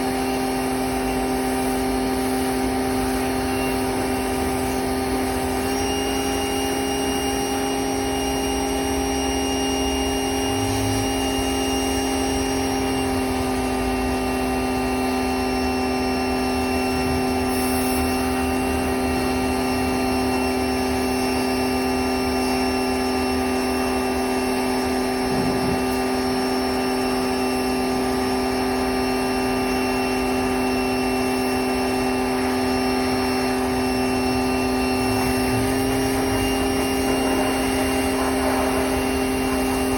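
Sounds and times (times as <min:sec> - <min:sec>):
machine motor humming: 0:28.9 - 0:39.9.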